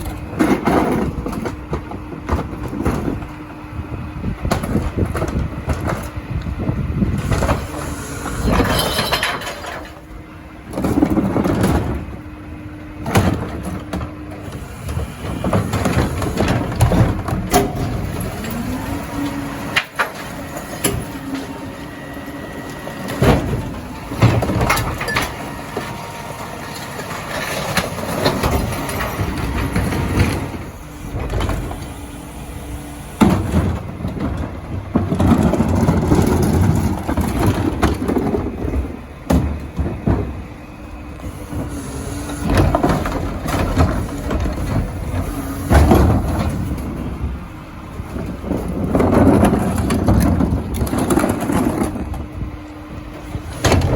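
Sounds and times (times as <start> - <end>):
carts knocking and clattering: 0.0 - 3.4, 7.2 - 10.1, 13.0 - 21.7, 22.7 - 32.0, 33.0 - 40.6, 41.3 - 52.3, 53.2 - 53.9
recyclables dropping into hopper: 7.1 - 10.1, 13.0 - 53.9.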